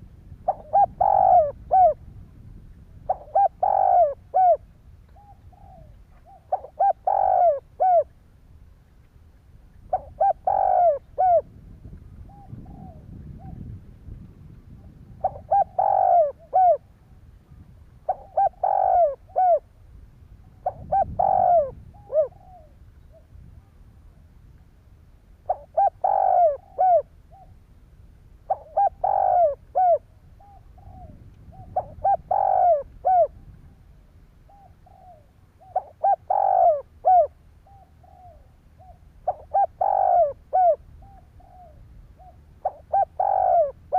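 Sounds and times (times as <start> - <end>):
dove cooing: 0.0 - 2.1, 3.0 - 8.2, 9.8 - 11.6, 12.2 - 13.8, 14.7 - 16.9, 18.0 - 19.7, 20.5 - 23.7, 25.4 - 27.6, 28.5 - 33.8, 34.5 - 43.9.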